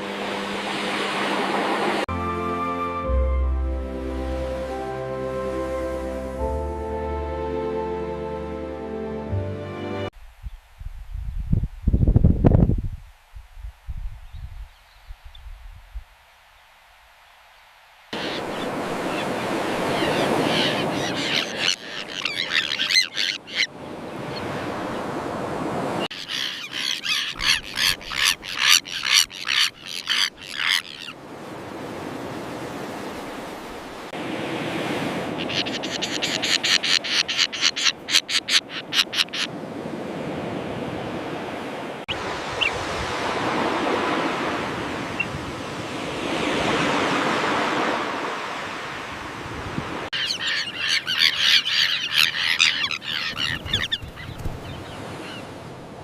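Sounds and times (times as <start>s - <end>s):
waves washing on shore: 0.0s - 2.1s, 18.1s - 37.6s, 39.2s - 56.0s
terns calling harshly: 18.2s - 24.5s, 26.1s - 31.2s, 35.3s - 39.6s, 50.1s - 55.4s.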